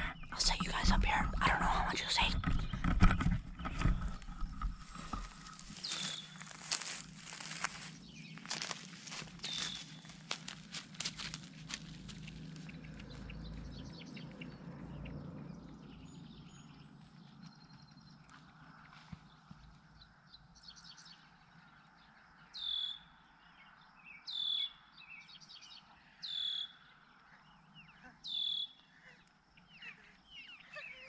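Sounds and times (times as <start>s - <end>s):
faint bird chirps: 0.0s - 10.2s, 22.0s - 31.0s
bird call: 5.1s - 10.3s, 22.6s - 23.1s, 26.2s - 26.9s, 28.0s - 31.0s.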